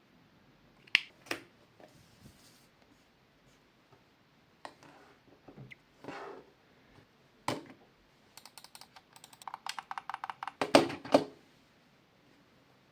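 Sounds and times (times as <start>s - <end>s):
mouse buttons clicking: 8.4s - 10.6s.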